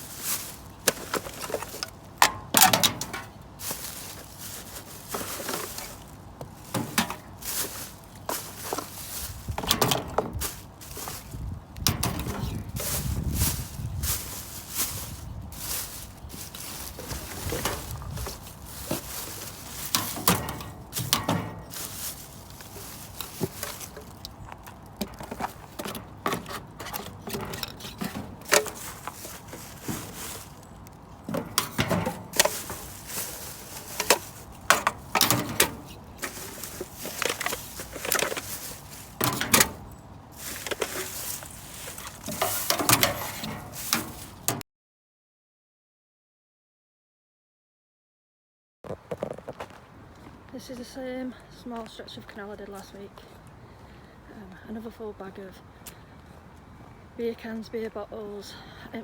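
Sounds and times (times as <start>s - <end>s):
cans and bottles clinking: 0.0s - 44.6s.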